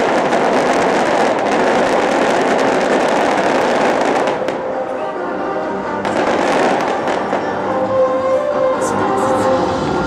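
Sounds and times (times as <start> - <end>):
fireworks crackling: 0.0 - 5.1, 6.0 - 7.7.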